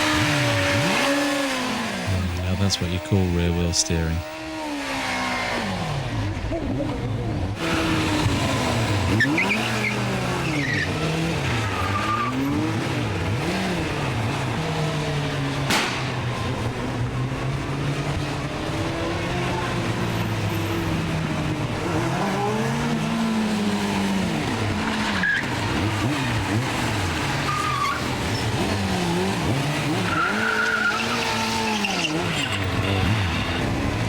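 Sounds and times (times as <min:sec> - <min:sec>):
motorcycle engine revving: 0:00.0 - 0:03.1, 0:04.2 - 0:34.0
tyre squeal: 0:30.1 - 0:33.8.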